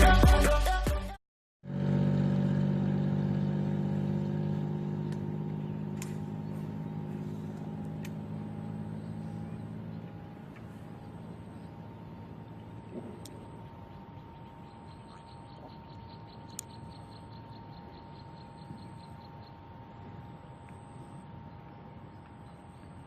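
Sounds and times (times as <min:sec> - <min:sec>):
motor running: 0:03.4 - 0:19.3.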